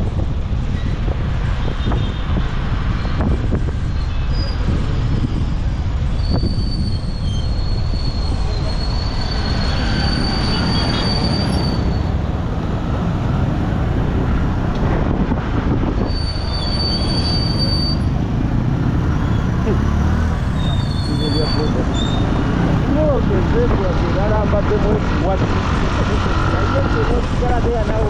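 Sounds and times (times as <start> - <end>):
motorcycle rumble: 0.0 - 28.0
high-pitched squeal: 4.0 - 12.2, 16.0 - 18.2, 19.0 - 23.2.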